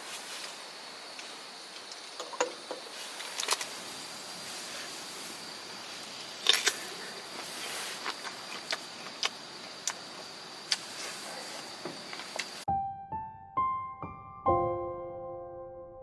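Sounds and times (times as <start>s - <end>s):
outdoor hiss: 0.0s - 12.7s.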